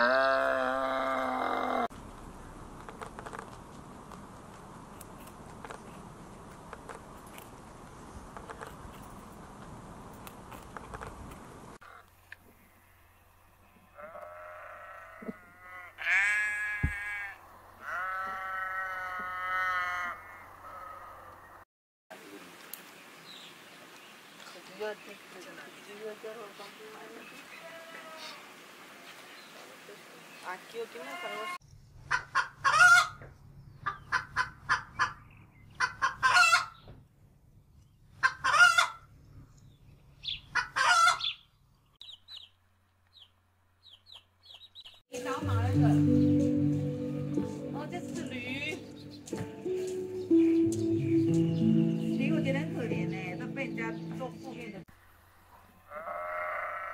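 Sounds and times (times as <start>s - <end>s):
sheep bleating: 0.0s - 1.9s, 14.0s - 21.3s, 31.0s - 31.6s, 55.9s - 56.9s
hens clucking: 35.8s - 36.7s, 38.2s - 39.0s, 40.5s - 41.4s.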